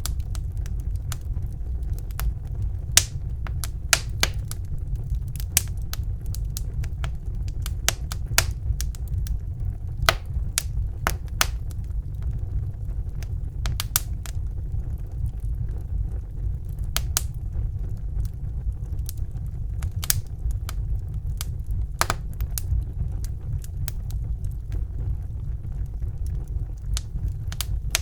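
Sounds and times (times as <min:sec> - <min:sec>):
burning logs crackling and popping: 0:00.0 - 0:28.0
flames rumbling: 0:00.0 - 0:28.0.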